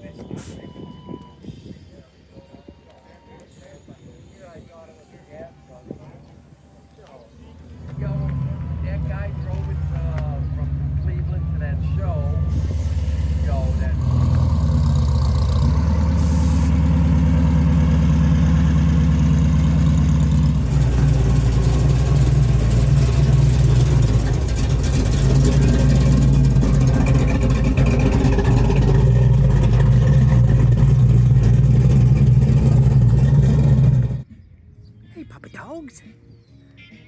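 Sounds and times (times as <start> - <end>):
car engine running: 7.4 - 34.3.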